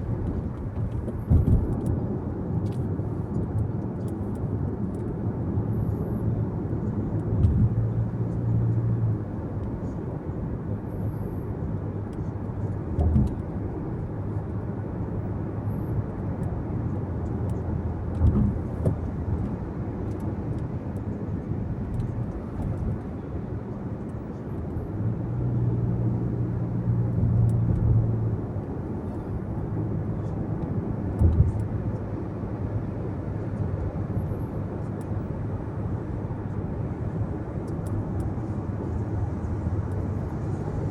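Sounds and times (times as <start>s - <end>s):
car tyre and engine rumble: 0.0s - 40.9s.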